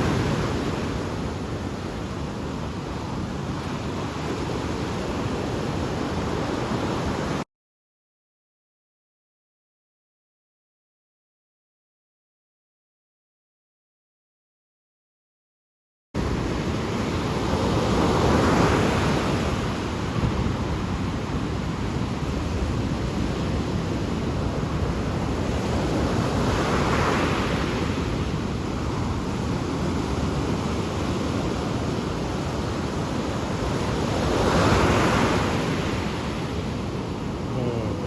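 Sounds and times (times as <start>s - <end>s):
ocean waves breaking on shore: 0.0s - 7.4s, 16.2s - 38.0s.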